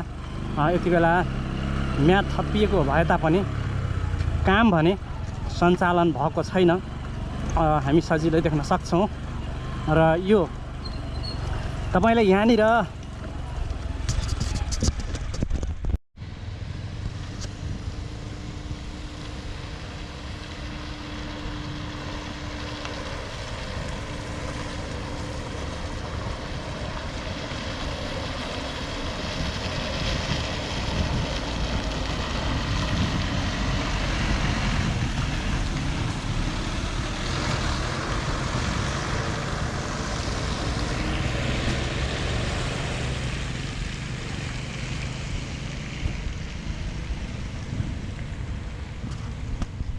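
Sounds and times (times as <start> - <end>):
vehicle and road noise: 0.0 - 49.9
wind buffeting microphone: 28.5 - 40.9, 46.0 - 49.9.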